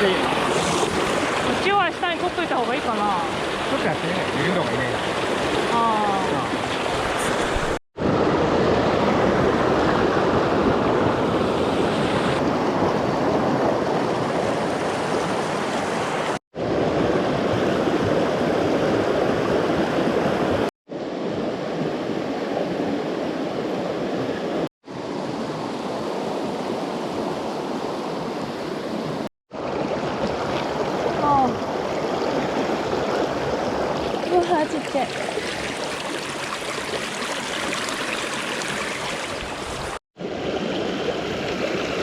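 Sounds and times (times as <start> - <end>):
stream rushing over rocks: 0.0 - 7.8, 13.6 - 16.4, 29.0 - 42.0.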